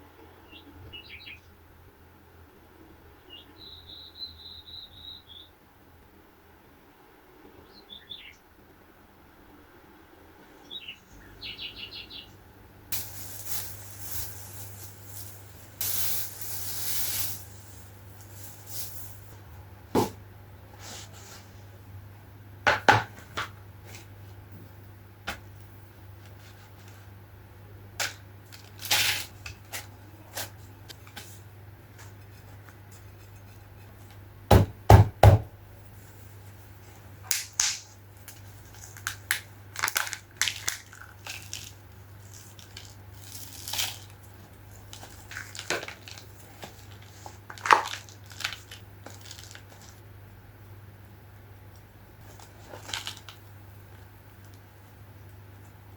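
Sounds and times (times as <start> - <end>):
packaging rustling and crinkling: 13.0 - 19.4, 28.5 - 34.2, 37.6 - 50.0, 52.2 - 54.6
loud knocks: 34.5 - 35.5.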